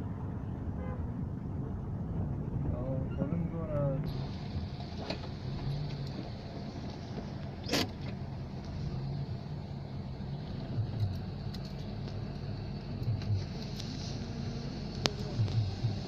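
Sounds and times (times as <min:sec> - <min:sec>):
car engine idling: 0:03.6 - 0:16.0.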